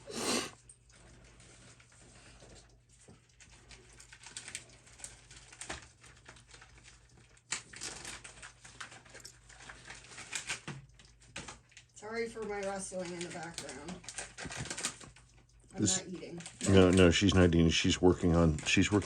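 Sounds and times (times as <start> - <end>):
rustling and crinkling: 0.6 - 19.0.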